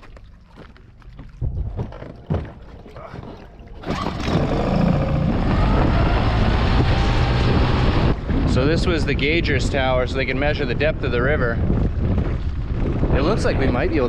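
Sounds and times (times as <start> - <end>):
footsteps on wooden planks: 0.0 - 3.6
boat motor running: 1.2 - 8.6
wind buffeting microphone: 1.2 - 14.0.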